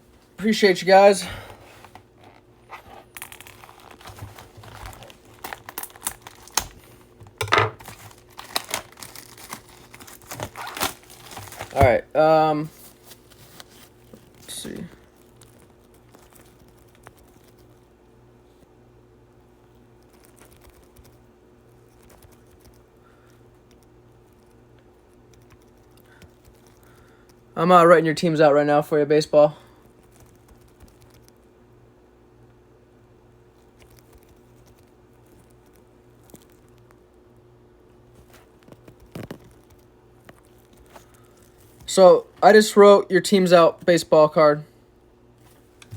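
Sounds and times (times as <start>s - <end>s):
low electrical hum: 0.0s - 45.9s
light taps and handling noises: 45.4s - 45.9s.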